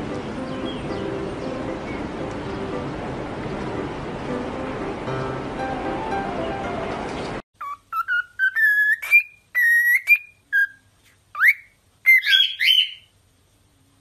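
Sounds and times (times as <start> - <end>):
background music: 0.0 - 7.4
cockatiel whistling: 7.6 - 13.1.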